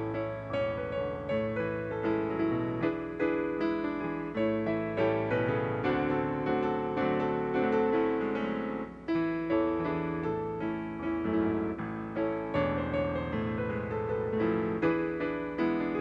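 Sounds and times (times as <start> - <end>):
slow piano piece: 0.0 - 16.0.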